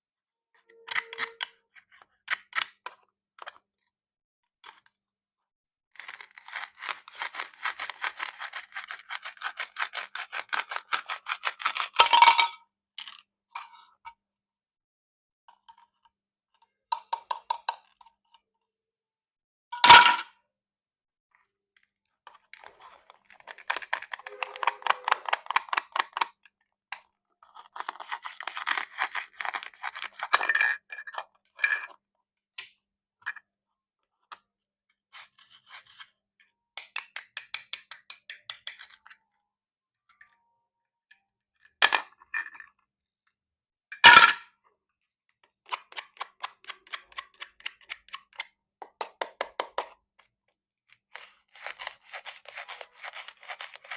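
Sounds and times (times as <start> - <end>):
plastic toy crackling clicks: 23.4 - 26.3.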